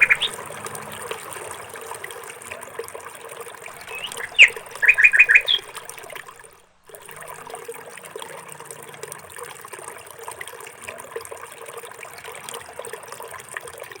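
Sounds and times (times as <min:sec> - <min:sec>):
bird chirping: 0:00.0 - 0:00.5, 0:03.8 - 0:05.9
water trickling: 0:00.0 - 0:14.0.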